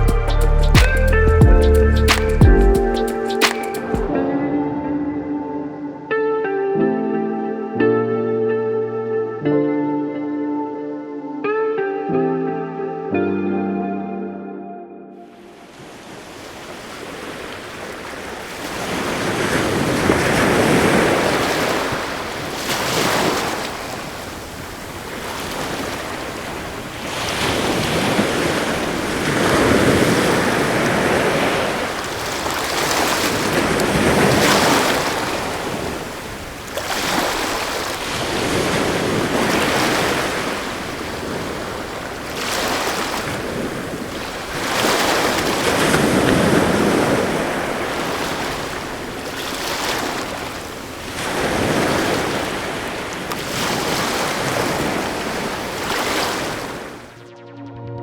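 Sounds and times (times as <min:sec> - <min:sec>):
sea surf breaking: 0:02.1 - 0:05.8, 0:15.6 - 0:57.1.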